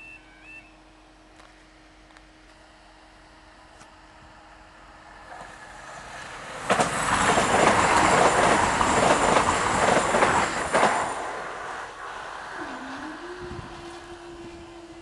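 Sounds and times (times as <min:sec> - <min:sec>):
faint high whine: 0:00.0 - 0:05.3, 0:11.9 - 0:15.0
train rushing past: 0:04.2 - 0:15.0.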